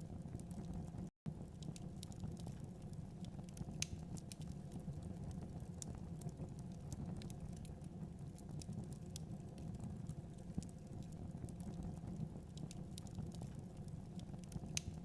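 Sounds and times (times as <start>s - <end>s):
low rumble of flames: 0.0s - 15.0s
fire pops and snaps: 0.2s - 15.0s.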